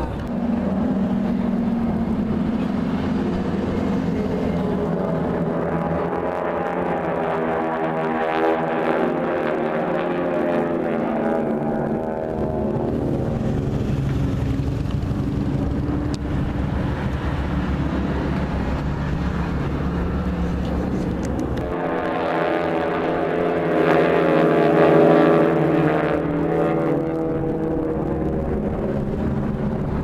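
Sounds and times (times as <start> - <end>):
propeller airplane engine: 0.0 - 30.0.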